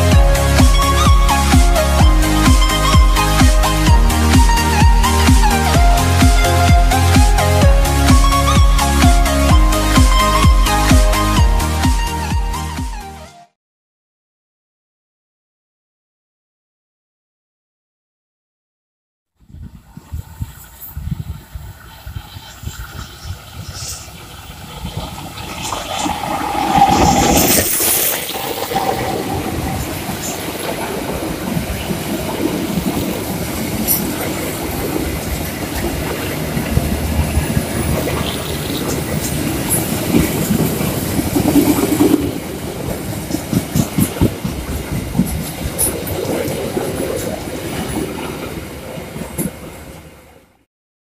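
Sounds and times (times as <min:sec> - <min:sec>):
train wheels clacking over rail joints: 0:25.0 - 0:49.8.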